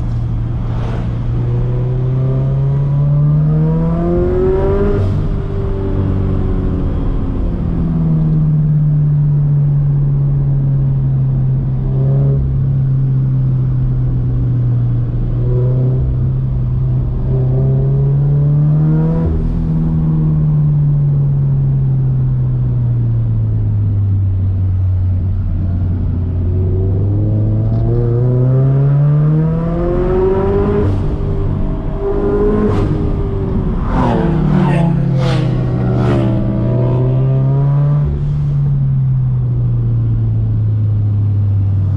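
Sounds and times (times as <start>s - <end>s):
car engine revving: 0.0s - 7.8s, 25.0s - 41.9s.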